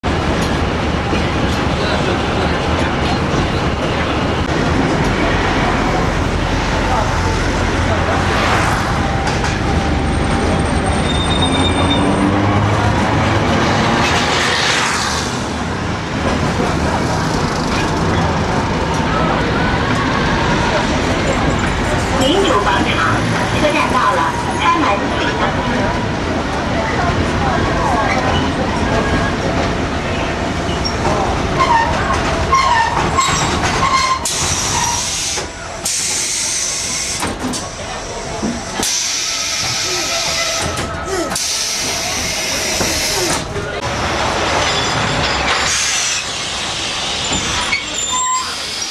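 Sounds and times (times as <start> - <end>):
tram rumbling on rails: 0.0 - 48.9
high wheel squeal: 9.0 - 12.4, 44.7 - 48.9.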